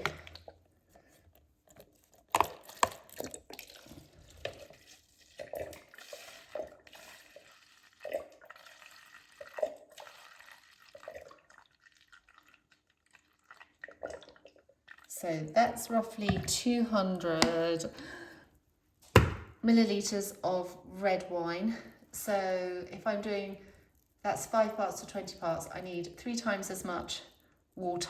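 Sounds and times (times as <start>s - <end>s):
liquid pouring: 2.3s - 15.2s.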